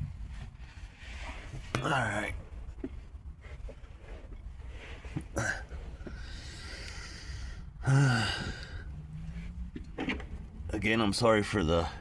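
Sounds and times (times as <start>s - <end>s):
man breathing out heavily: 5.4s - 8.9s
man sighing: 7.8s - 8.9s.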